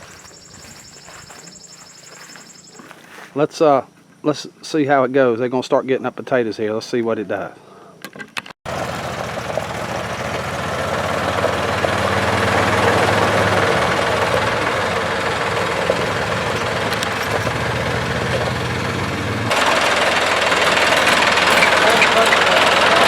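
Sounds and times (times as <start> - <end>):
engine drone: 0.0 - 2.9, 8.7 - 23.0
continuous mechanical rattle: 19.5 - 23.0.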